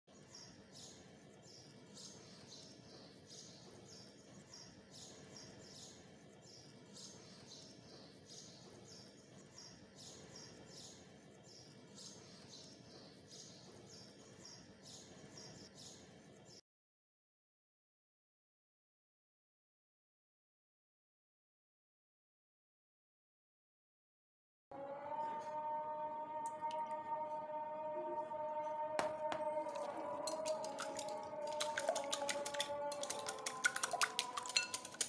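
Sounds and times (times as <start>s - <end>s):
faint bird chirps: 0.1s - 16.6s.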